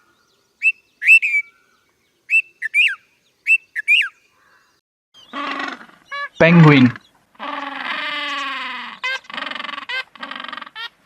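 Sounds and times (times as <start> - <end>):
bird whistled calls: 0.6 - 1.7, 2.3 - 4.2.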